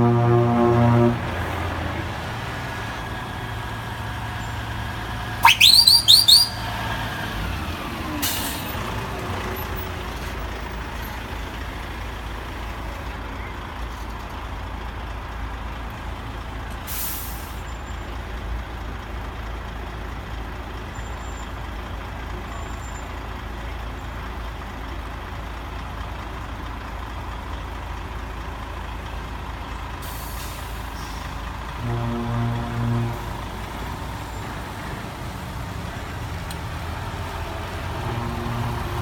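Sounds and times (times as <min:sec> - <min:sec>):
low steady horn tone: 0:00.0 - 0:02.0, 0:31.8 - 0:33.6, 0:37.9 - 0:39.0
truck diesel engines idling: 0:00.0 - 0:39.0
air brake hiss: 0:08.2 - 0:08.7, 0:16.9 - 0:17.7, 0:30.0 - 0:31.4.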